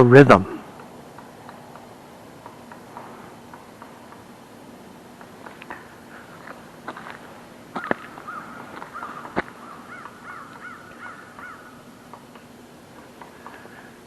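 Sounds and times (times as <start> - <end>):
crows cawing: 7.7 - 12.2.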